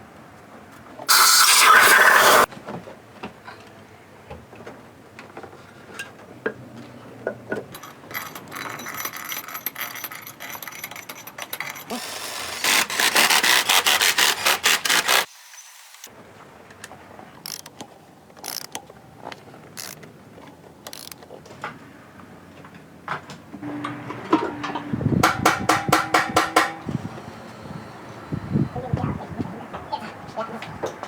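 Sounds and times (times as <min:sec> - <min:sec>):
ratchet wrench clicking: 0:17.4 - 0:17.8, 0:18.4 - 0:18.8, 0:19.8 - 0:20.0, 0:20.9 - 0:21.2
tool clicks and knocks: 0:23.8 - 0:27.0.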